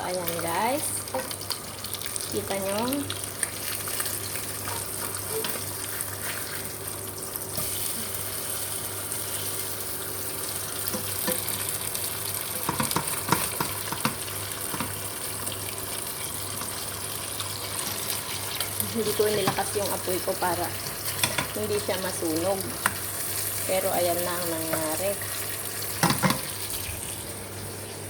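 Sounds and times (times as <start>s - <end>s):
fish sizzling in hot oil: 0.0s - 28.0s
sharp clicks and knocks in pan: 1.1s - 1.6s, 10.9s - 11.7s, 12.5s - 15.1s, 17.8s - 19.8s, 21.0s - 21.6s, 22.8s - 23.1s, 24.6s - 25.0s, 26.0s - 26.6s.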